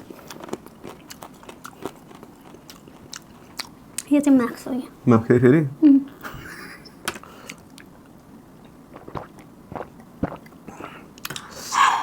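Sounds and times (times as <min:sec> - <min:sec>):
person chewing food: 0:00.0 - 0:04.1, 0:07.1 - 0:12.0.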